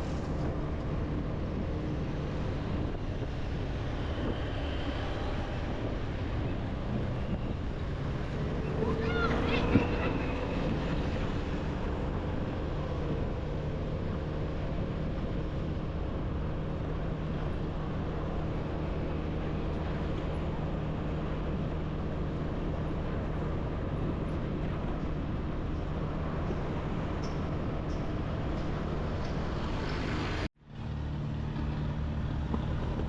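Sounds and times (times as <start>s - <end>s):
road and traffic noise: 0.0s - 33.0s.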